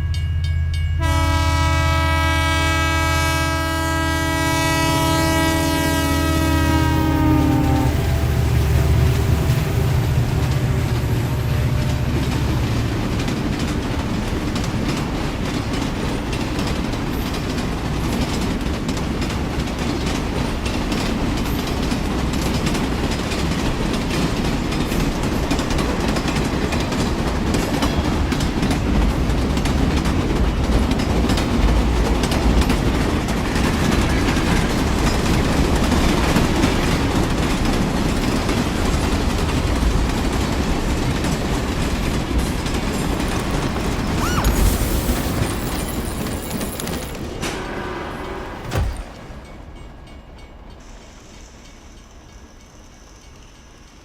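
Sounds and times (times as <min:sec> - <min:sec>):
train rumbling: 0:00.0 - 0:54.0
wheels clattering over rails: 0:08.2 - 0:49.7.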